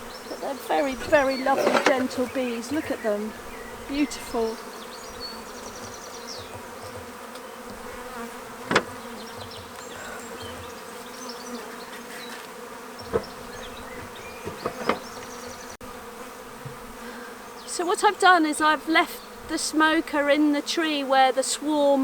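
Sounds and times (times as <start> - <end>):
bee swarm buzzing: 0.0 - 22.0
sharp knocks: 8.6 - 9.8.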